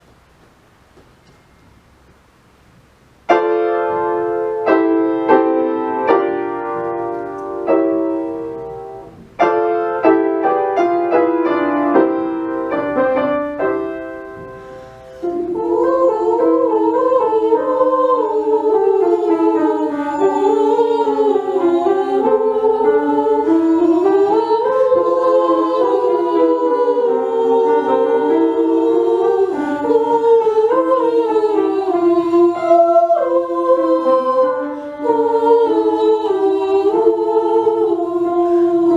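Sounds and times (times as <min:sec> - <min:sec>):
piano chords: 0:03.2 - 0:38.9
vocal ensemble singing in harmony: 0:03.7 - 0:38.9.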